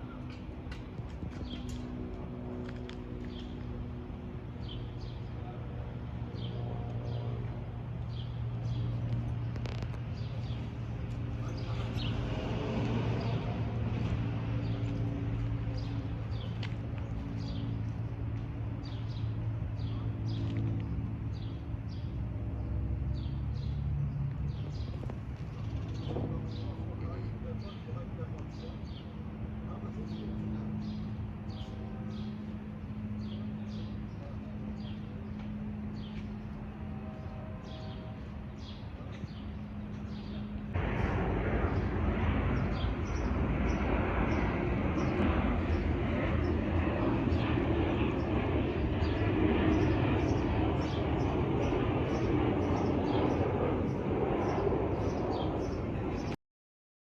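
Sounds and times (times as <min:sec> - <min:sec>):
jet airliner rumble: 0:00.0 - 0:56.4
low mechanical drone: 0:00.0 - 0:56.4
low hum: 0:35.1 - 0:56.4
small birds chirping: 0:41.6 - 0:56.4.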